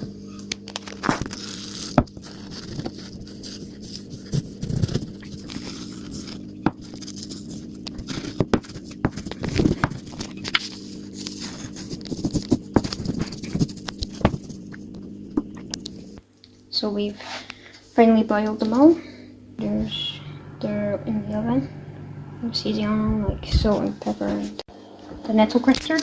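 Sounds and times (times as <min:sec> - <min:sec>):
steady low hum: 0:00.0 - 0:26.0
rolling pin scraping leaves: 0:00.7 - 0:16.2.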